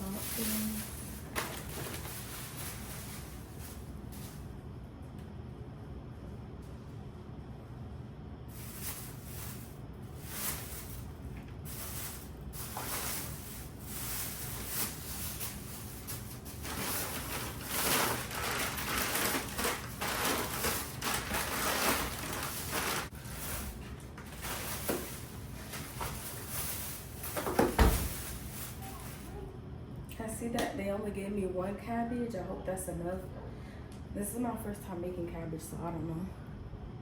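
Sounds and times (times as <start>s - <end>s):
bags and packaging rustling: 0.0s - 4.5s, 8.5s - 29.4s.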